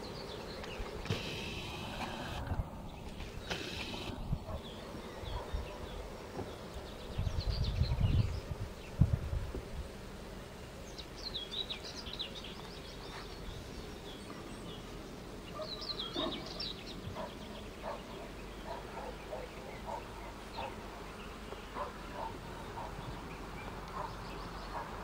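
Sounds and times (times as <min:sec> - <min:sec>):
low outdoor hum: 0:00.0 - 0:07.1
songbirds chirping: 0:00.0 - 0:09.0, 0:10.4 - 0:25.0.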